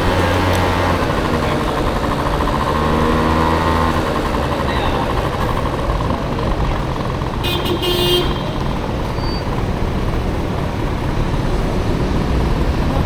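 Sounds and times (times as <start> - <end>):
motor scooter riding rumble: 0.0 - 13.0
vehicle horn toot: 7.4 - 8.7.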